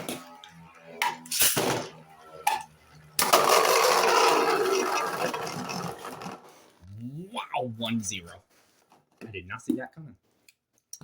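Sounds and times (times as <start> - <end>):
spinning tops whirring and clashing: 0.0 - 6.5.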